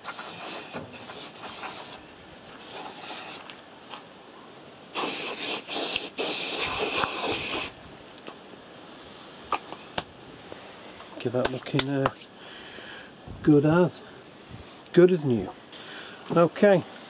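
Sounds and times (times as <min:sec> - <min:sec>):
spray hissing: 0:00.0 - 0:03.5, 0:04.9 - 0:07.8.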